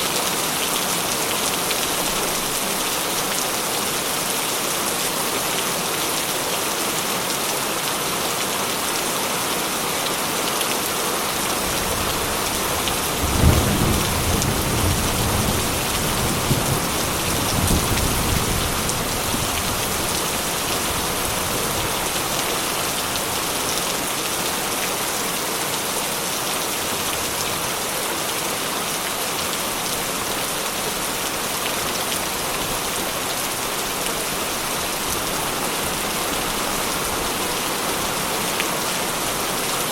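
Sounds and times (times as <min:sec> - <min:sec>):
heavy rain on a tin roof: 0:00.0 - 0:39.9
low rumble of thunder: 0:12.4 - 0:20.2.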